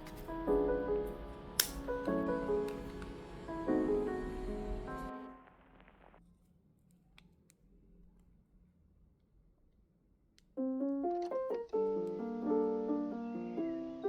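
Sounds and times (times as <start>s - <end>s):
piano-like keyboard music: 0.0s - 5.6s, 10.6s - 14.0s.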